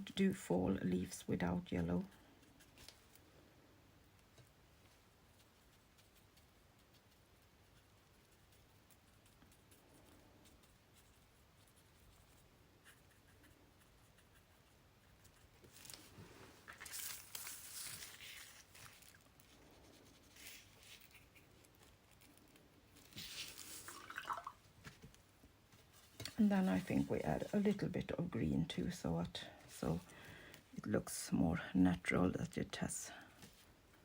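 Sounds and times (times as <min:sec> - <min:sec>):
paper rustling: 0:15.6 - 0:28.0.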